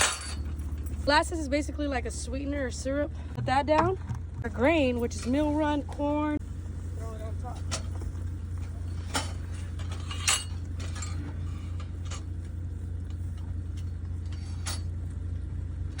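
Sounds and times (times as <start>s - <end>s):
metallic clinks and knocks: 0.0s - 1.1s, 7.5s - 12.3s
vehicle engine running: 0.0s - 16.0s.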